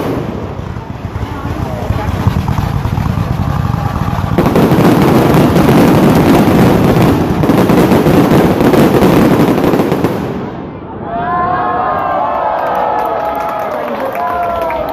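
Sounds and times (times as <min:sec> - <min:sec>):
fireworks cracking and popping: 0:00.0 - 0:10.6.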